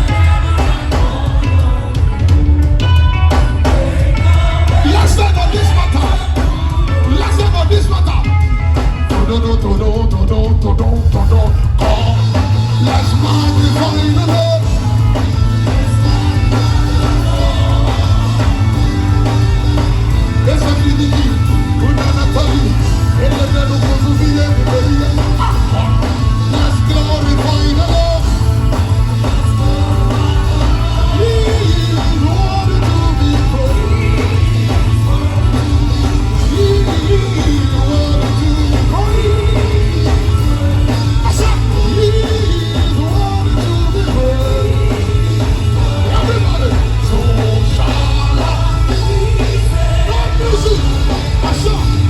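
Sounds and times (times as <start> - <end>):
gospel band with singing: 0.0 - 52.0.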